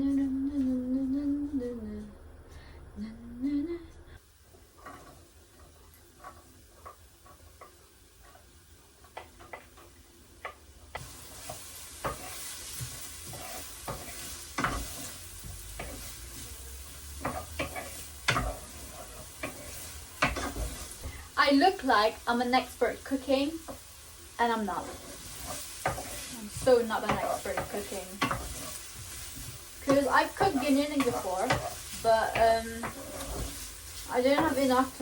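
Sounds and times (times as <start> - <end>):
food sizzling in oil: 4.2 - 35.0
utensil scraping a pan: 11.0 - 21.2, 24.6 - 35.0.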